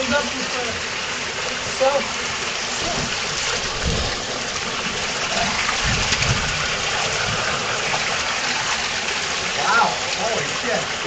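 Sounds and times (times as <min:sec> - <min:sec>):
underground waterfall pouring: 0:00.0 - 0:11.0.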